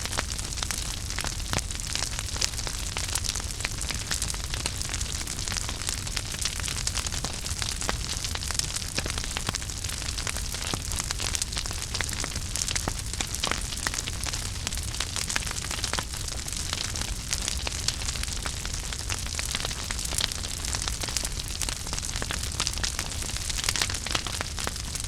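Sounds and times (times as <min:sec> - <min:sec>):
low rumble of flames: 0:00.0 - 0:25.0
wood fire crackling and popping: 0:00.0 - 0:25.0.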